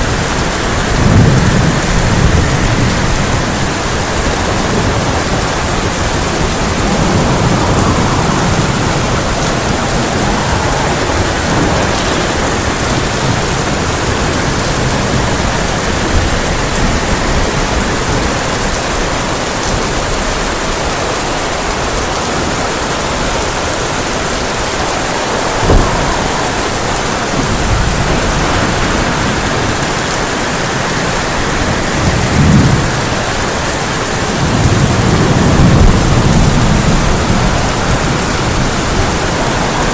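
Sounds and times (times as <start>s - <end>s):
heavy rain on a tin roof: 0.0s - 39.9s
thunder rolling: 0.0s - 39.9s
sharp thunder crack: 0.4s - 15.7s, 23.1s - 33.3s.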